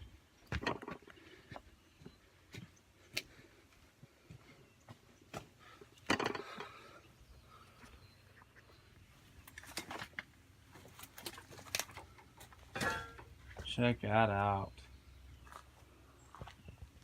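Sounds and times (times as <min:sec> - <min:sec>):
scattered clicks and knocks: 0:00.5 - 0:01.1.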